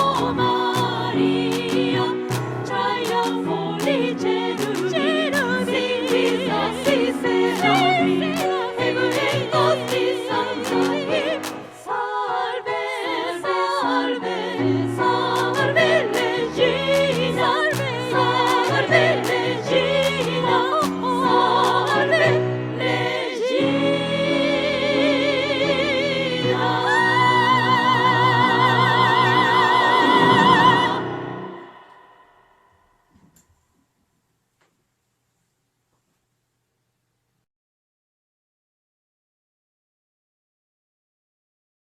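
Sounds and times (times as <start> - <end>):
women's choir singing a hymn: 0.0 - 32.4
piano: 0.0 - 32.9.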